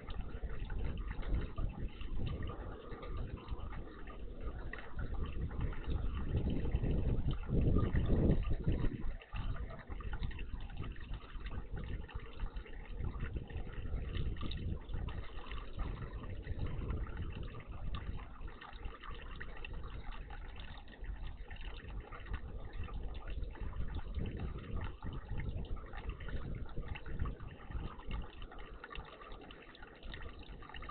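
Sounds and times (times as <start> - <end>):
water splashing and trickling: 0.0 - 30.9.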